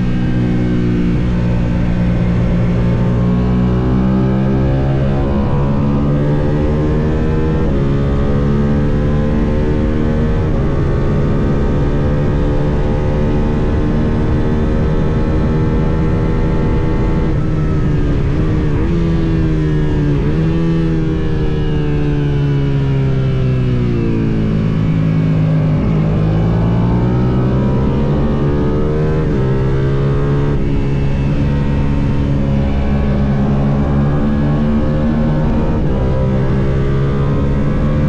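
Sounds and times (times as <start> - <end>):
quick downshifts with revs: 0.0 - 38.0
race motorcycle engine revving: 23.8 - 38.0.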